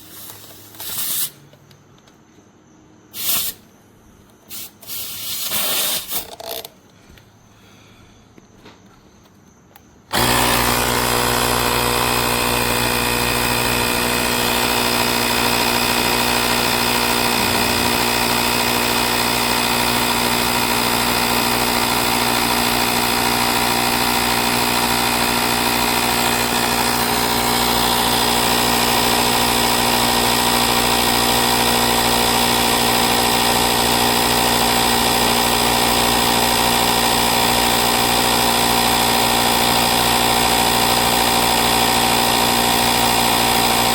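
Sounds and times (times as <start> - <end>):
air compressor running: 0.0 - 1.6, 3.1 - 3.6, 4.5 - 6.7, 10.1 - 43.9.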